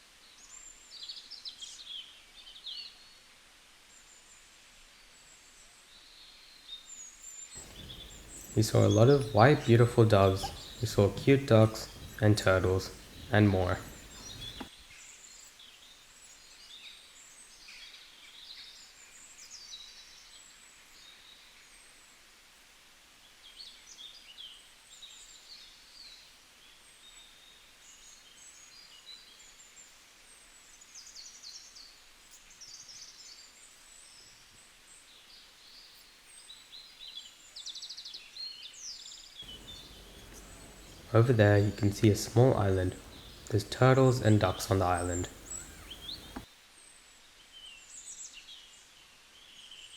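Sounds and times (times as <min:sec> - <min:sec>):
many birds chirping: 0:07.6 - 0:14.7, 0:39.4 - 0:46.5.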